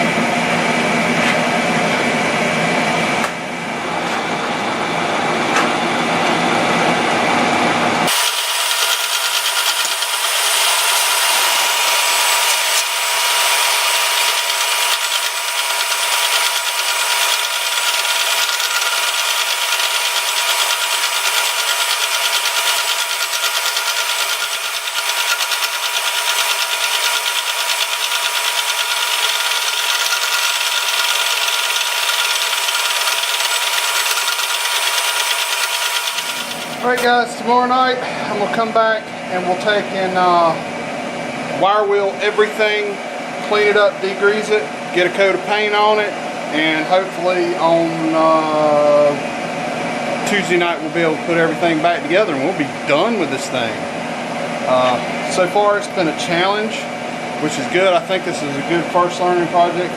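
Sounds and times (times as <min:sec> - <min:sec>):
power tool grinding metal: 0:08.1 - 0:37.1.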